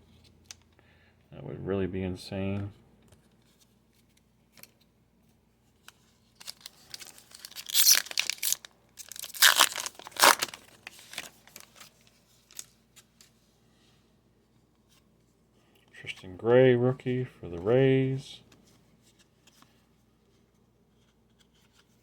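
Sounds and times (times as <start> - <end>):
wrapper crinkling and tearing: 6.3 - 12.8.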